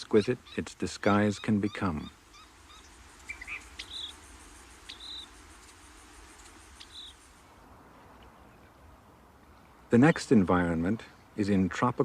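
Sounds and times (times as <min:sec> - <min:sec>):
insect trilling: 0:00.0 - 0:07.5.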